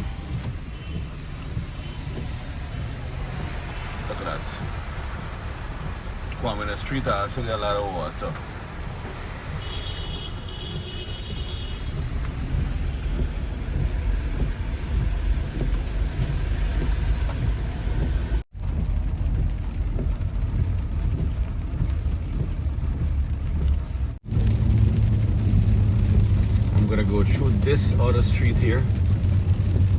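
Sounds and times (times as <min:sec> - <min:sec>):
car engine and tyres rumbling: 0:00.0 - 0:29.9
heavy rain: 0:00.0 - 0:29.9.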